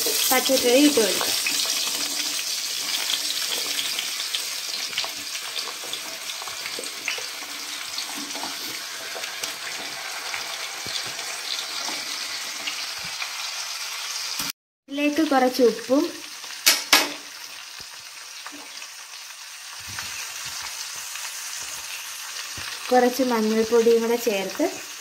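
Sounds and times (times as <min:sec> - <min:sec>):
vegetables sizzling in oil: 0:00.0 - 0:25.0
pieces dropping into pan: 0:16.6 - 0:17.3.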